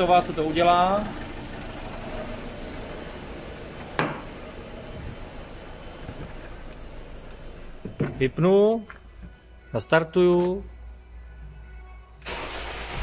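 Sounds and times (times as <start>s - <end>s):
diesel engine idling unevenly: 0.0s - 8.4s.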